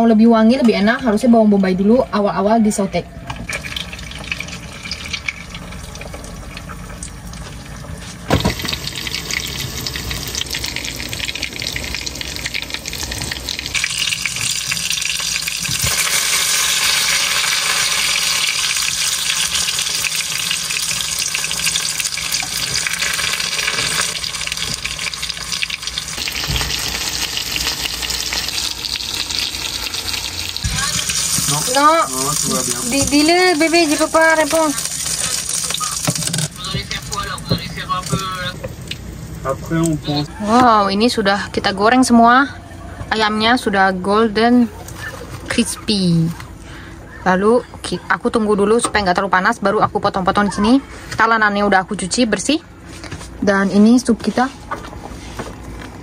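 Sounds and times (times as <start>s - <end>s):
chicken sizzling in hot oil: 3.5s - 40.5s.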